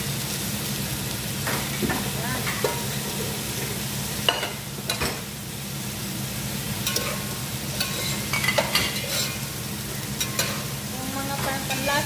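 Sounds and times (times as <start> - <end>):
vegetables sizzling in a pot: 0.0 - 12.0
metal spoon scraping a pot: 7.8 - 9.4.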